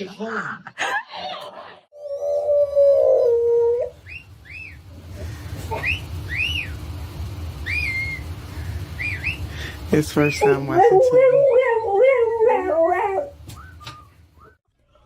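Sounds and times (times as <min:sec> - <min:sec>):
dog whining: 0:02.0 - 0:04.1, 0:10.4 - 0:13.4.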